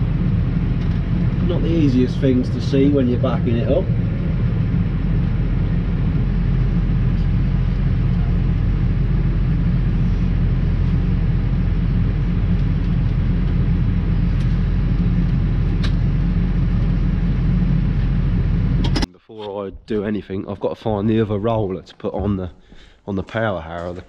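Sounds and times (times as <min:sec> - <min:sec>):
diesel engine running at low revs: 0:00.0 - 0:19.1.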